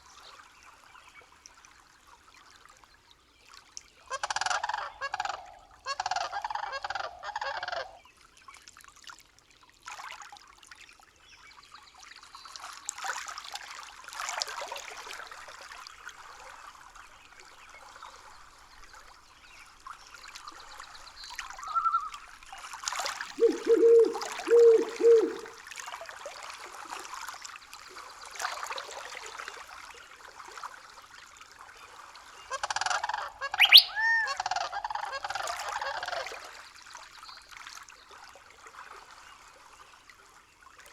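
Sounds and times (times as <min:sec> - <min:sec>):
outdoor background noise: 0:18.4 - 0:26.0, 0:32.4 - 0:36.3
birds calling: 0:23.4 - 0:25.6, 0:33.4 - 0:34.4.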